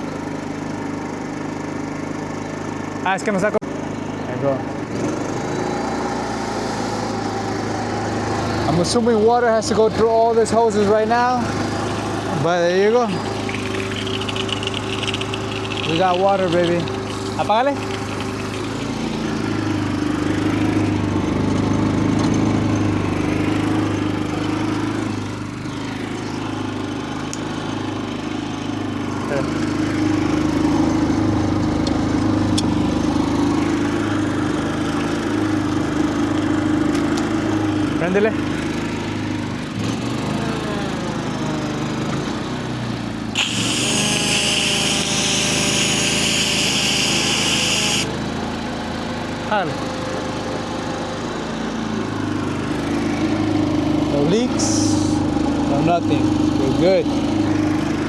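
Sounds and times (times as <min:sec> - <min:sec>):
small gasoline engine droning: 0:00.0 - 0:03.1, 0:03.7 - 0:58.0
pressure washer spray hissing: 0:13.2 - 0:19.7, 0:43.4 - 0:48.1.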